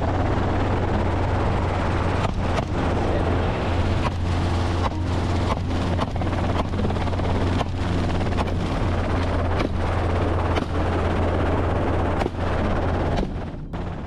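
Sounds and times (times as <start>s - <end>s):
helicopter drone: 0.0s - 14.0s
rushing wind: 0.0s - 14.0s.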